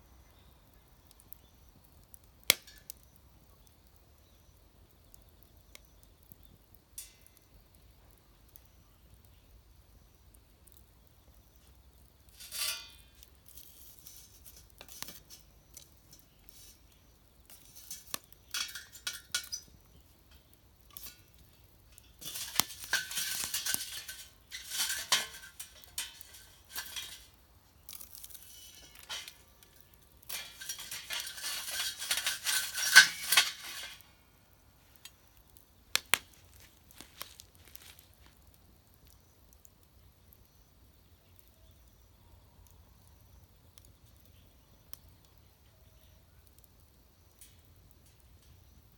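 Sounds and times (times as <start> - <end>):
metal objects clinking and clattering: 12.4 - 15.5, 17.5 - 34.2.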